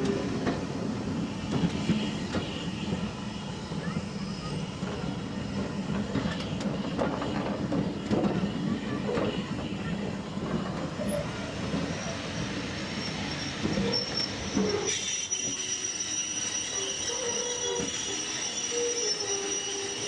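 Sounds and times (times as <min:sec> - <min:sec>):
train rolling along track: 0:00.0 - 0:20.0
high wheel squeal: 0:11.0 - 0:20.0.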